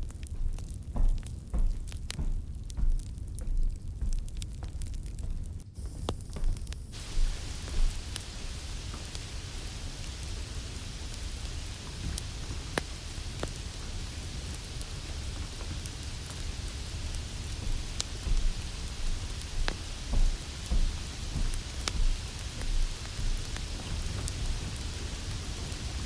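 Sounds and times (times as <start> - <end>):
sharp crackling pops: 0.0 - 26.0
steady rain hiss: 0.0 - 26.0
low thunder rumbles: 5.8 - 26.0.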